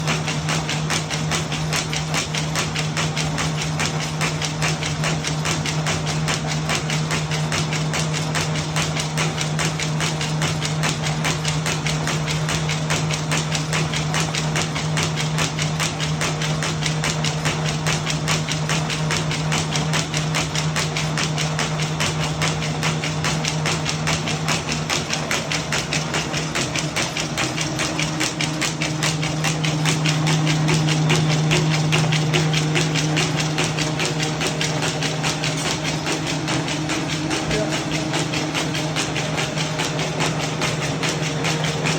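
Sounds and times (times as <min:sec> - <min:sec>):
machine knocking fast: 0:00.0 - 0:41.9
low machine hum: 0:18.9 - 0:41.9.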